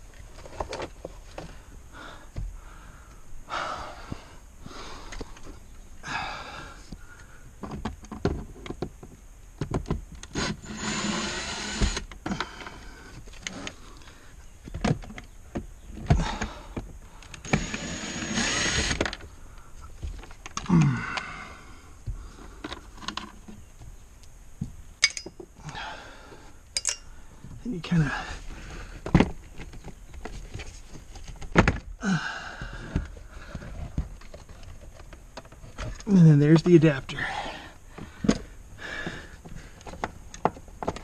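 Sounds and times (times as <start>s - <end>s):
plastic parts clicking and knocking: 18.8s - 19.3s, 22.6s - 23.6s.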